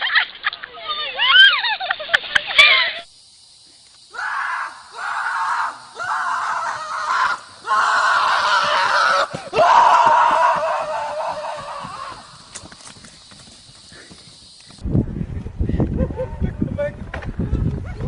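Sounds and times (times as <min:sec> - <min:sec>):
person screaming: 0:04.1 - 0:12.3.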